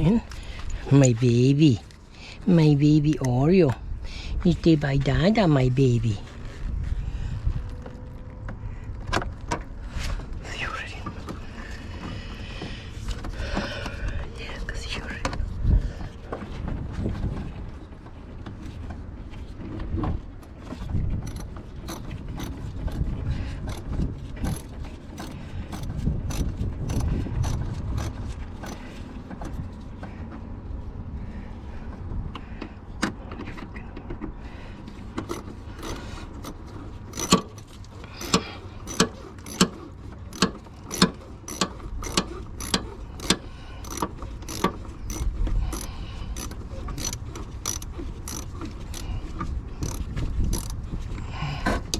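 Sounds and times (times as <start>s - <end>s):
ratchet wrench clicking: 21.2s - 28.9s, 35.2s - 49.2s, 49.8s - 50.8s.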